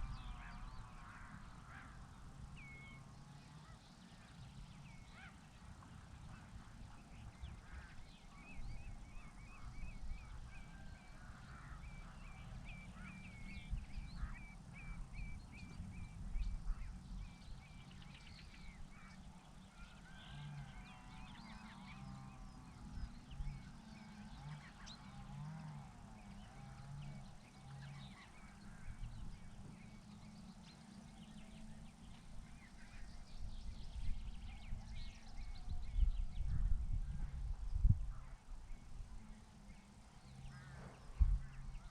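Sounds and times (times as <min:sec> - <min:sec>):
steady low rumble: 0:00.0 - 0:03.0, 0:40.5 - 0:41.9.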